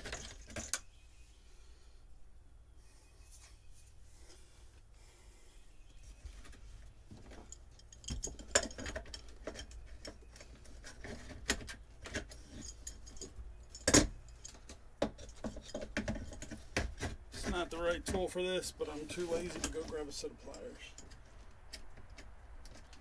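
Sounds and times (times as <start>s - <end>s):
hand tools clicking and rattling: 0.0s - 0.9s, 6.4s - 23.0s.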